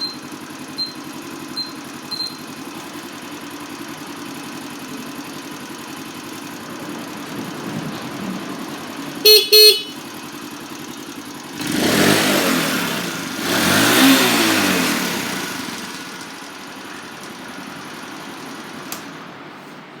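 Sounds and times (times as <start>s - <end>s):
motorcycle horn beeps: 0.0s - 2.7s, 9.2s - 10.6s
motorcycle engine idling and revving: 0.0s - 19.8s.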